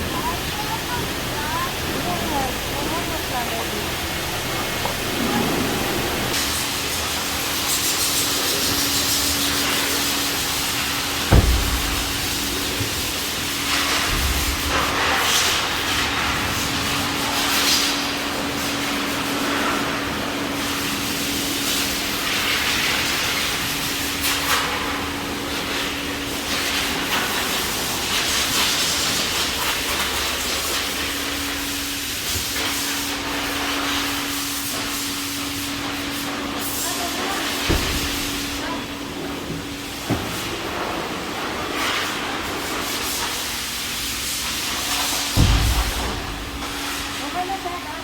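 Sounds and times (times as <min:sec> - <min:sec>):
vacuum rushing hiss: 0:08.2 - 0:16.8
motor hum: 0:11.3 - 0:14.8.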